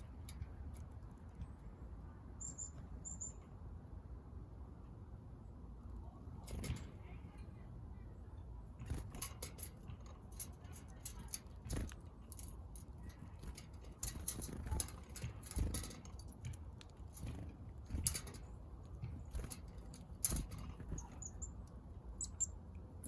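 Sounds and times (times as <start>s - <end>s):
birds pecking at seed: 8.7s - 23.0s.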